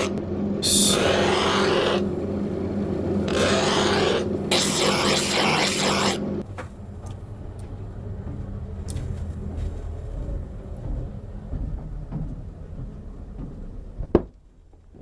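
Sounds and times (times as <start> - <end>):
steel rasping scrape: 0.0 - 6.4
low machine hum: 0.0 - 15.0.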